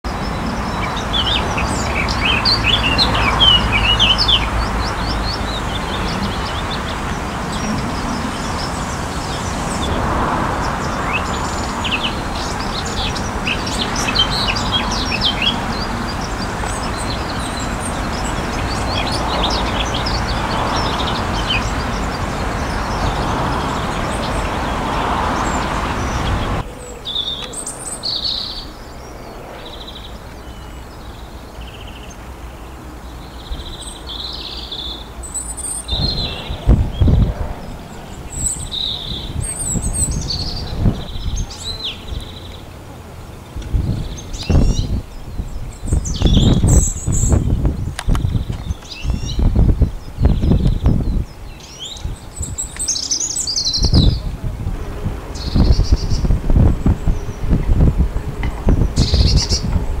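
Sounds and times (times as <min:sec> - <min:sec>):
birds chirping and trilling: 0:00.0 - 1:00.0
steady rushing background noise: 0:34.8 - 1:00.0.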